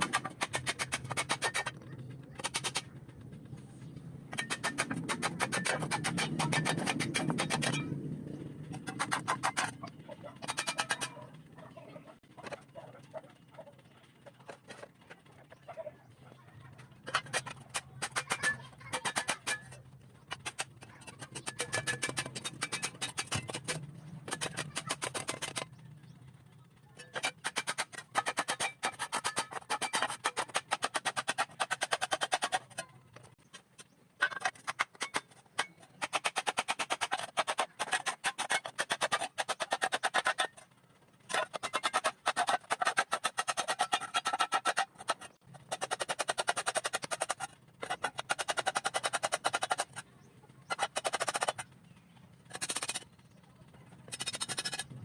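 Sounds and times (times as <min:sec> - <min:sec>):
low hum: 0:00.0 - 0:28.2.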